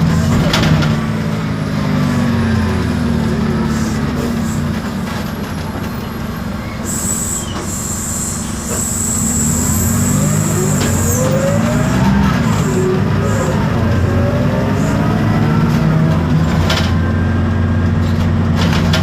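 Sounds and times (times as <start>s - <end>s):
bus engine running: 0.0s - 19.0s
thin high whistle: 6.6s - 11.3s
rising whine: 7.9s - 16.0s.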